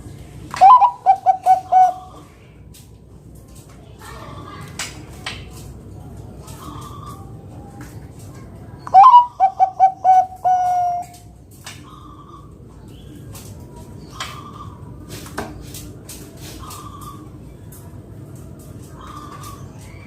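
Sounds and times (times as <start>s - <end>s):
faint background noise: 0.0s - 20.0s
dove cooing: 0.5s - 2.2s, 8.9s - 11.2s.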